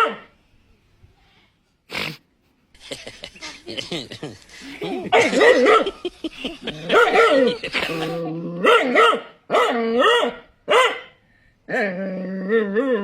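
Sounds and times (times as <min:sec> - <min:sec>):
dog barking and whining: 0:00.0 - 0:00.3, 0:05.1 - 0:06.0, 0:06.8 - 0:11.1.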